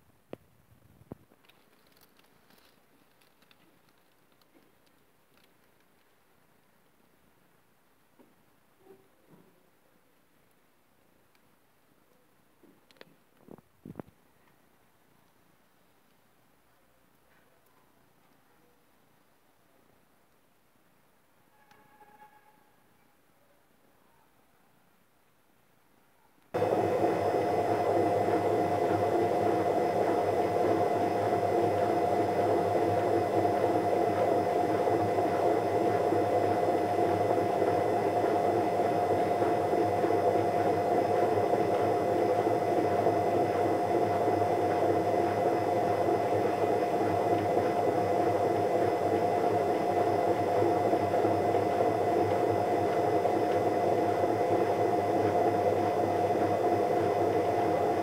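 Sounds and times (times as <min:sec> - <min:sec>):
steady machine hum: 0:26.6 - 0:58.0.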